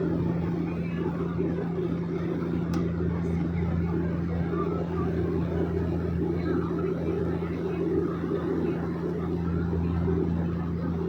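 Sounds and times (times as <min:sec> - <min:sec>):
propeller airplane engine droning: 0:00.0 - 0:11.0.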